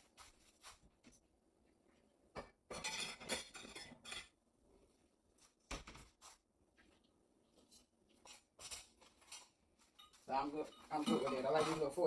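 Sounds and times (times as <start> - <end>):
kitchenware clinking and clattering: 2.3 - 4.4, 7.7 - 12.0.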